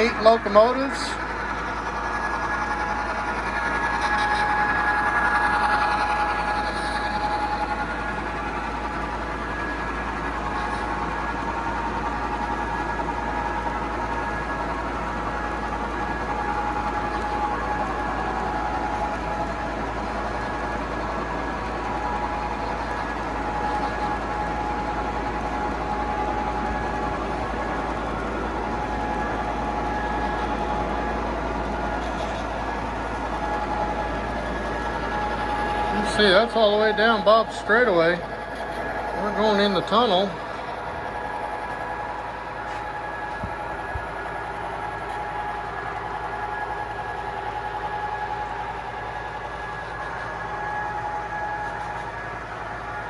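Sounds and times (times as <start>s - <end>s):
model train rolling on track: 0.0s - 53.0s
steady tones: 14.0s - 48.6s.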